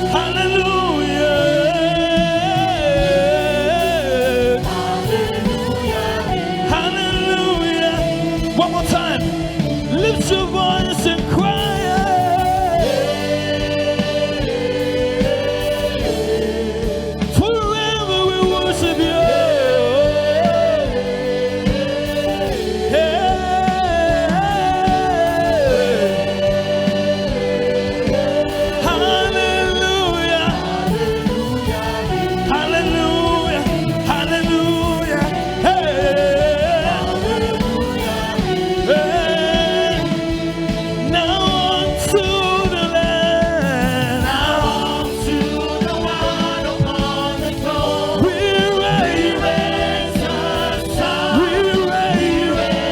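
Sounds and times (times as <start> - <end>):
group singing gospel: 0.0 - 52.9
instrumental backing music: 0.0 - 52.9.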